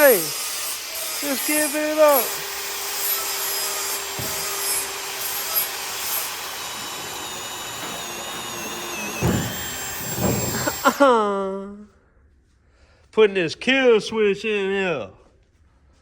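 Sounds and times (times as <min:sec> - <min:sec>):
power tool rasping with whine: 0:00.0 - 0:11.1
low thumps: 0:04.0 - 0:05.1, 0:06.6 - 0:10.9.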